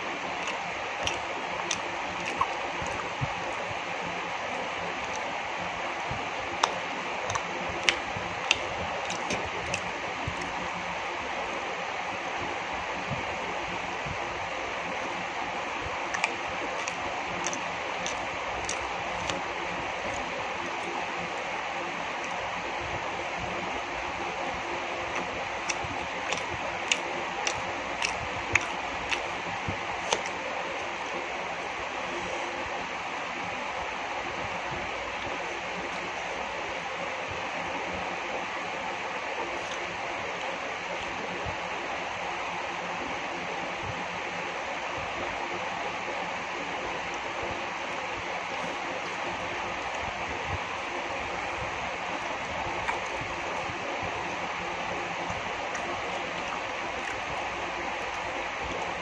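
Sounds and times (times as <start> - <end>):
person chewing food: 0.0 - 11.6, 15.9 - 23.8, 24.5 - 32.4, 39.5 - 41.1, 52.1 - 59.0
mouth clicks and smacks: 0.1 - 11.6, 15.9 - 23.5, 24.5 - 32.4, 39.5 - 41.2, 50.7 - 59.0.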